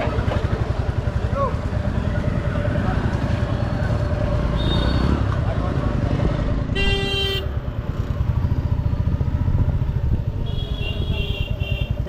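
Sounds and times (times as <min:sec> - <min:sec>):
motorcycle engine running: 0:00.0 - 0:12.0
vehicle horn honking: 0:06.7 - 0:07.6, 0:10.4 - 0:12.0.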